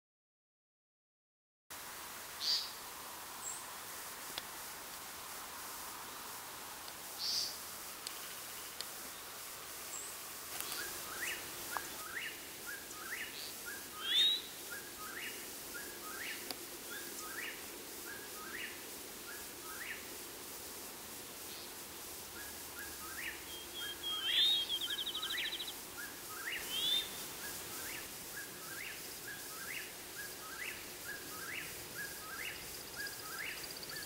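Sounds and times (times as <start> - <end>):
faint steady hum: 1.7 - 34.0
night bird whistled call: 10.7 - 20.0, 22.4 - 34.0.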